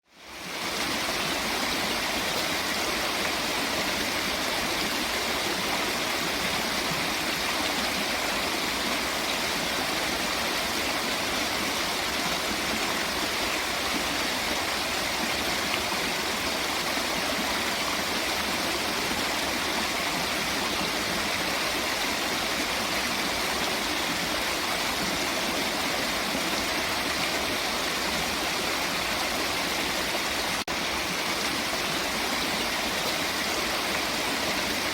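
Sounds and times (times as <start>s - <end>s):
flowing water rushing: 0.0s - 34.9s.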